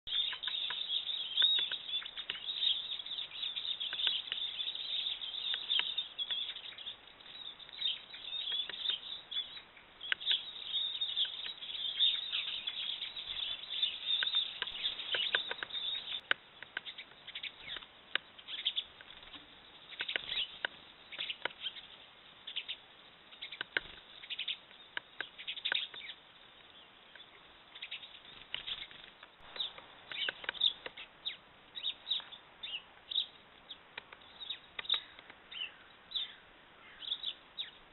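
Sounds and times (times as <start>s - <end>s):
woodpecker tapping: 0.1s - 7.0s, 7.6s - 21.8s, 23.4s - 26.1s, 27.1s - 31.1s, 33.9s - 35.8s
high bird chirps: 0.1s - 37.9s.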